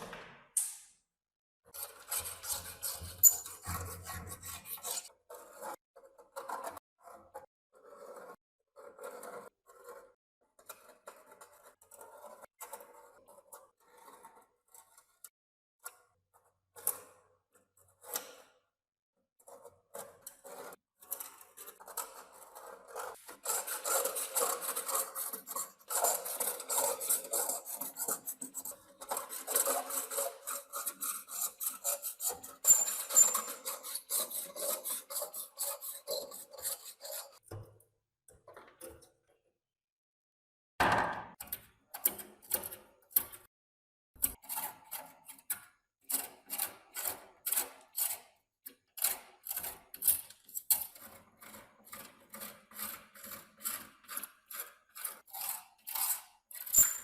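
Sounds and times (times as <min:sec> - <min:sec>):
hand scraping rusty metal: 0:01.8 - 0:05.8, 0:19.5 - 0:37.4.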